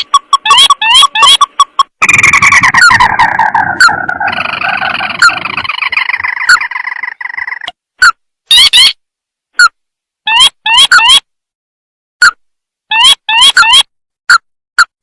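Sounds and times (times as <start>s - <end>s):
crake chattering trill: 0.0s - 7.7s.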